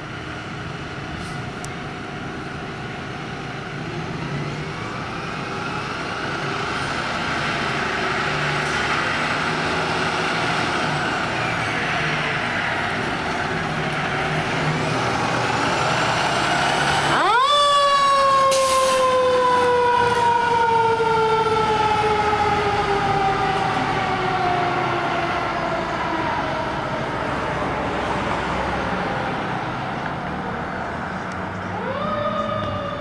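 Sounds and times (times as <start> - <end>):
truck engine and road noise: 0.0 - 33.0
short hiss: 18.5 - 19.0.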